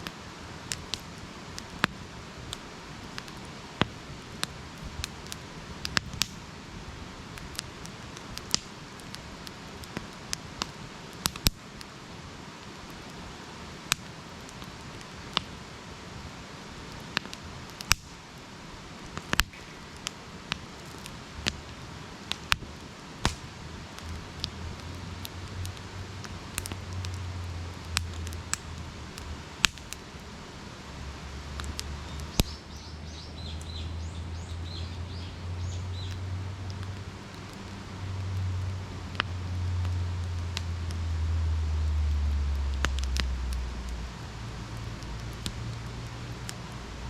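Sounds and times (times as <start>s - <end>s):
campfire crackling: 0.0s - 47.0s
low hum: 30.9s - 47.0s
bird chirping: 32.0s - 36.2s.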